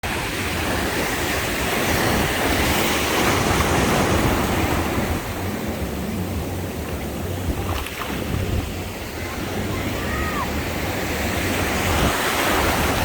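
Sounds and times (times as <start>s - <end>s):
sea waves breaking on shore: 0.0s - 13.0s
wind rumbling on microphone: 0.0s - 13.0s.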